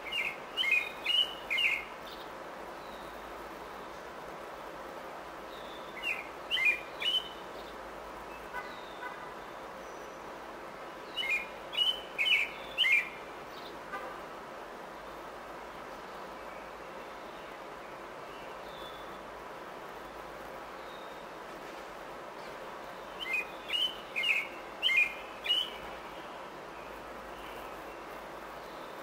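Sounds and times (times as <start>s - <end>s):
bird chirping: 0.0s - 3.2s, 5.5s - 9.1s, 11.1s - 13.8s, 22.4s - 29.0s
steady background hiss: 0.0s - 29.0s.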